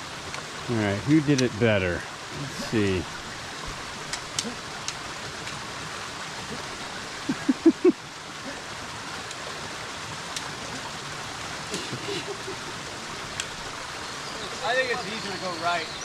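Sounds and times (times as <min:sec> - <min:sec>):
rushing stream: 0:00.0 - 0:16.0
faint clicks: 0:04.1 - 0:05.6, 0:13.3 - 0:13.6.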